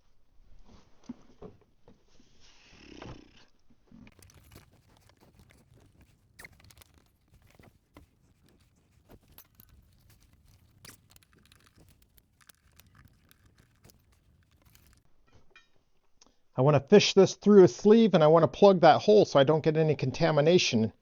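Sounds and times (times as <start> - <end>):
small metal parts clicking: 4.1 - 15.0.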